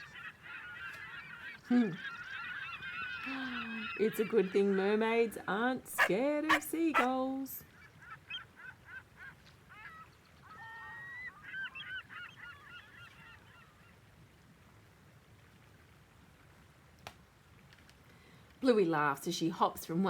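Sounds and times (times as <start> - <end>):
flock of gulls squawking: 0.0 - 4.8, 6.0 - 7.2.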